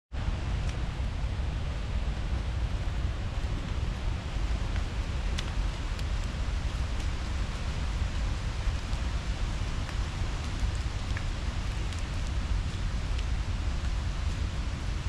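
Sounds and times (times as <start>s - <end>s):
low rumble: 0.2s - 15.0s.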